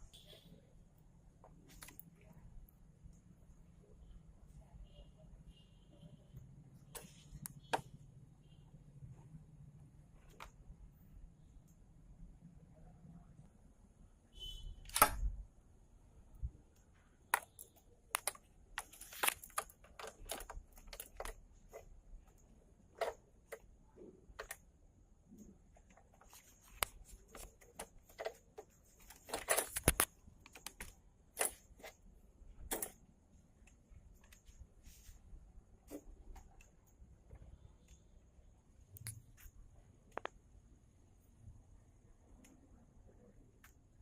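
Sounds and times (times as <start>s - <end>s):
small parts and hand tools clicking: 16.8s - 24.7s, 25.4s - 32.0s.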